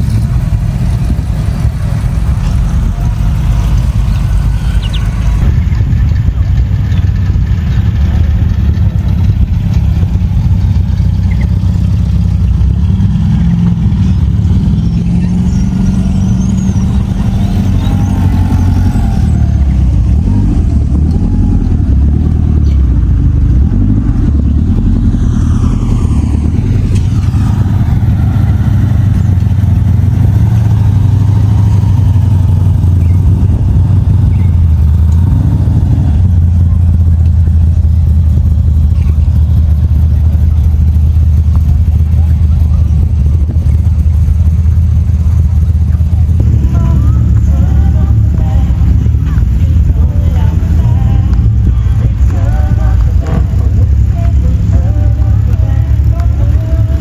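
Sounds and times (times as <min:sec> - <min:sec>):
car engines driving past: 0:00.0 - 0:57.0.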